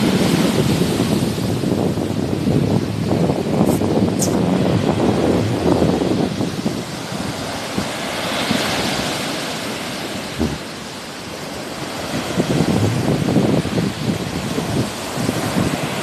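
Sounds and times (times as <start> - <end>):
sea waves washing onto shore: 0.0 - 16.0
wind buffeting microphone: 0.0 - 16.0.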